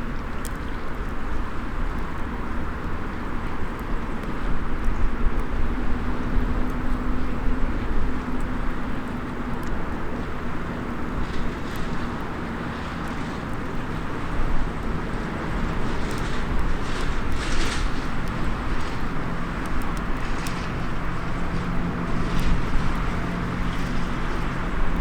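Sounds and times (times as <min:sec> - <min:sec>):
low outdoor rumble: 0:00.0 - 0:25.0
wood fire crackling: 0:05.3 - 0:25.0.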